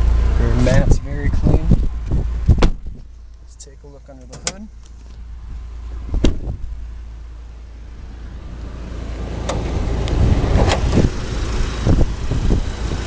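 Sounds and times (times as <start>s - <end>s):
steady low rumble: 0.0s - 13.0s
car hood clunks: 2.1s - 3.1s, 6.1s - 6.7s, 9.4s - 11.2s
car hood latch click: 4.3s - 4.7s.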